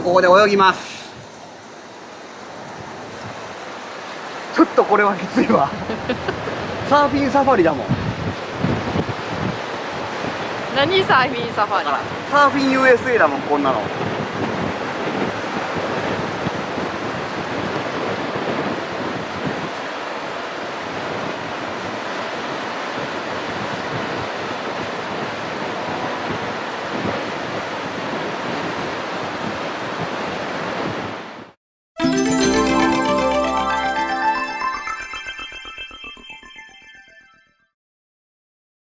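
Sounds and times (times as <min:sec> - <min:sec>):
surf breaking on a beach: 0:02.4 - 0:31.2
wind on microphone: 0:07.7 - 0:12.3, 0:13.8 - 0:19.9, 0:23.0 - 0:31.2
electronic music: 0:32.0 - 0:37.7.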